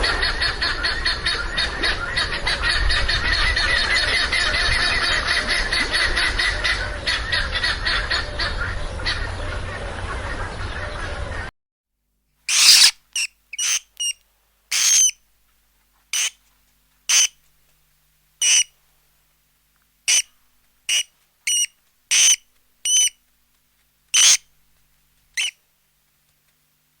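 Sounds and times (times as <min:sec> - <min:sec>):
bird high-pitched calls: 0:12.5 - 0:15.2, 0:16.1 - 0:16.4, 0:17.1 - 0:17.4, 0:18.4 - 0:18.7, 0:20.1 - 0:20.3, 0:20.9 - 0:23.2, 0:24.2 - 0:24.5, 0:25.4 - 0:25.6.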